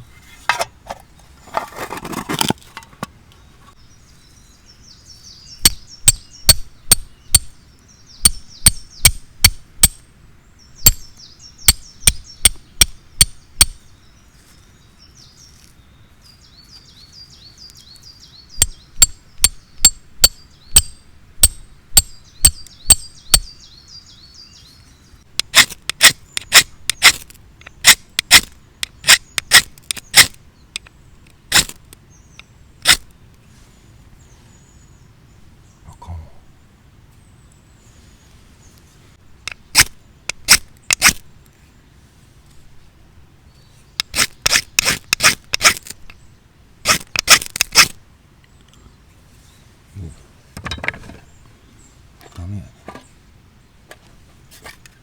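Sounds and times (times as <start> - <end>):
small birds twittering: 2.9 - 42.6, 43.4 - 55.0
sharp knocks: 50.6 - 51.3.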